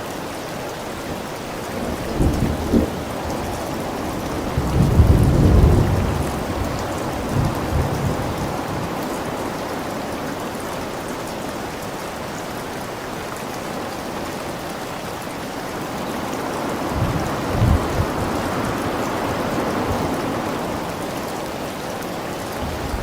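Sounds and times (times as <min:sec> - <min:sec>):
heavy rain: 0:00.0 - 0:23.0
low thunder rumble: 0:01.8 - 0:08.9, 0:16.9 - 0:20.8.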